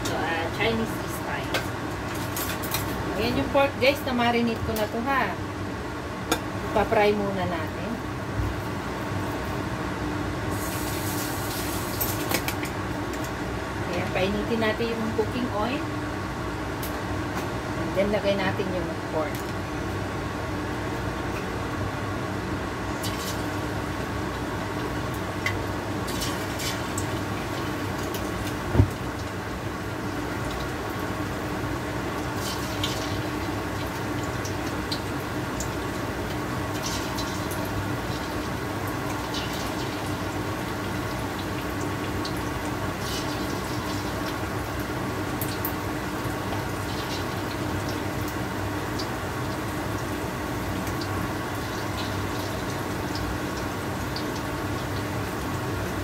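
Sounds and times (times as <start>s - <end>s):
meat sizzling in a wok: 8.5s - 12.8s, 22.6s - 56.0s.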